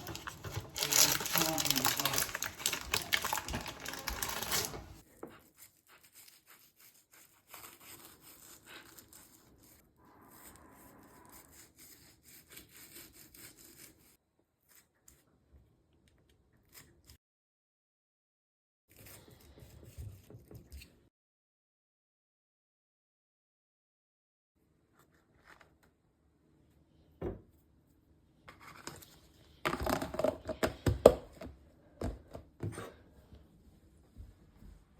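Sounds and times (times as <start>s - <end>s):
faint scraping and rubbing: 8.0s - 14.2s.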